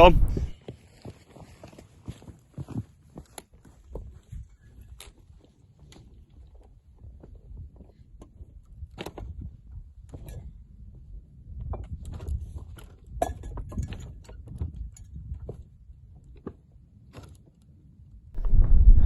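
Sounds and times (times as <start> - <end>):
wind buffeting microphone: 0.0 - 0.5, 18.4 - 19.0.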